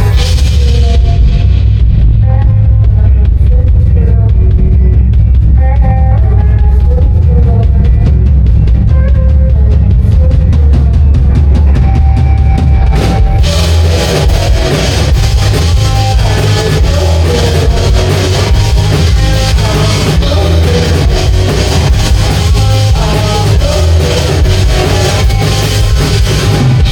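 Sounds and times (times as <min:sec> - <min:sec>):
pounding drum kit: 0:00.0 - 0:26.9
rock band playing loud: 0:00.0 - 0:26.9.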